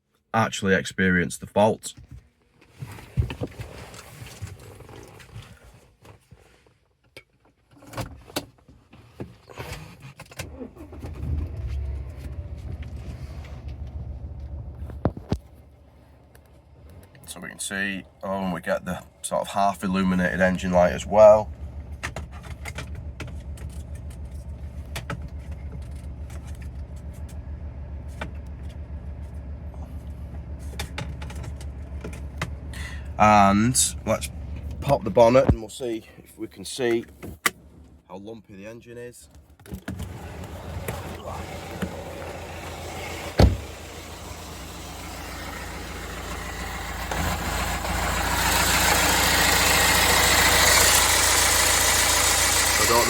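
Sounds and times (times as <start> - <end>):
diesel engine idling roughly: 17.7 - 35.4, 40.2 - 53.0
sharp clicks and knocks: 21.8 - 27.4, 30.4 - 32.7
loud thump: 43.3 - 43.8.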